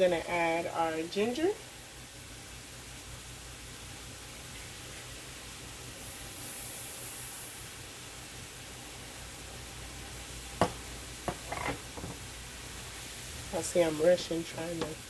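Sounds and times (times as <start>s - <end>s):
food sizzling in a frying pan: 0.0s - 15.0s
bright hiss: 1.9s - 15.0s
soft knocks: 10.6s - 12.2s.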